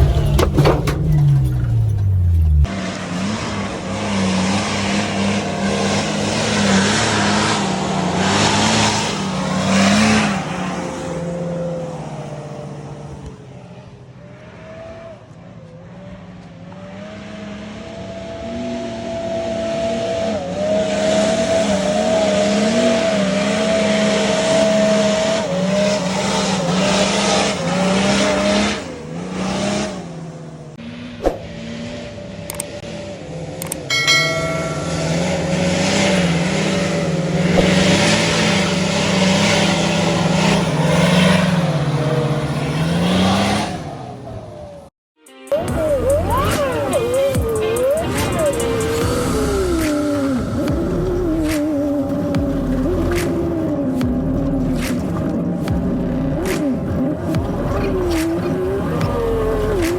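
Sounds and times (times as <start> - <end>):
off-road vehicle engine running: 0.0 - 44.9, 45.5 - 59.9.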